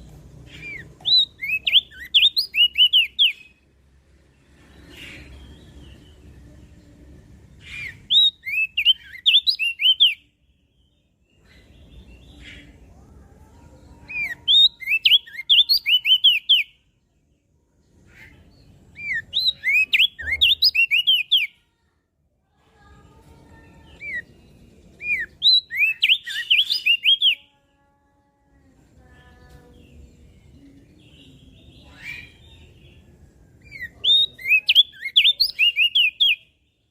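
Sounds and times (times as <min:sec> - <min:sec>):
bird singing high sharp notes: 0:00.5 - 0:03.6, 0:19.0 - 0:21.5, 0:23.8 - 0:27.4.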